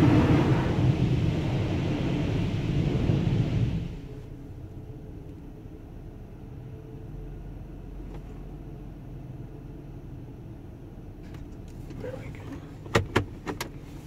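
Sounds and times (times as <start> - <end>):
rushing noise: 0.0 - 4.2
engine idling inside cabin: 0.0 - 14.0.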